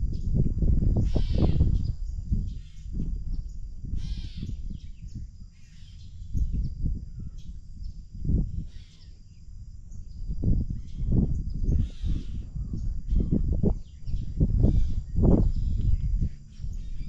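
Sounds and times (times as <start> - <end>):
wind rumble on microphone: 0.0 - 17.0
bird cawing: 4.0 - 4.5.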